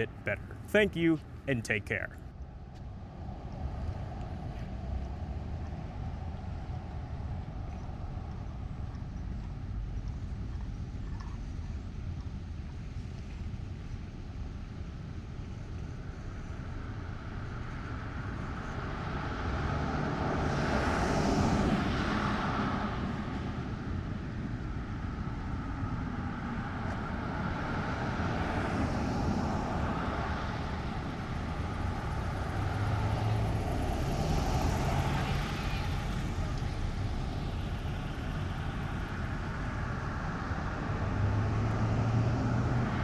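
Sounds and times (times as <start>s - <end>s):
vehicles passing: 0.0s - 2.3s, 17.5s - 43.0s
traffic rumble: 0.0s - 10.6s, 16.7s - 43.0s.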